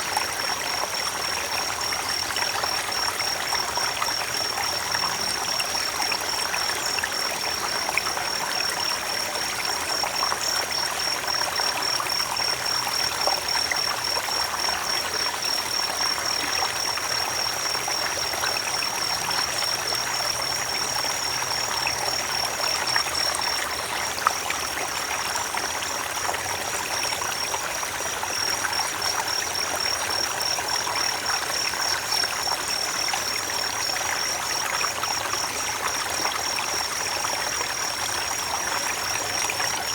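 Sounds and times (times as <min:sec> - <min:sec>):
creek water babbling: 0:00.0 - 0:39.9.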